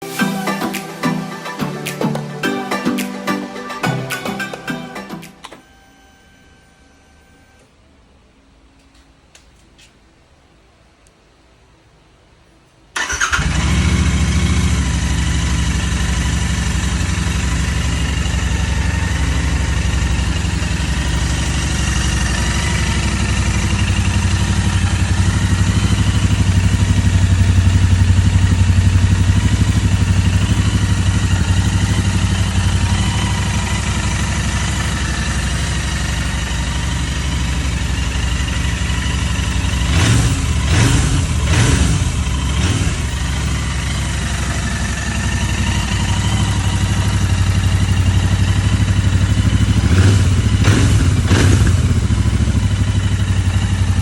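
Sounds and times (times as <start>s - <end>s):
motorcycle engine idling: 13.0s - 54.0s.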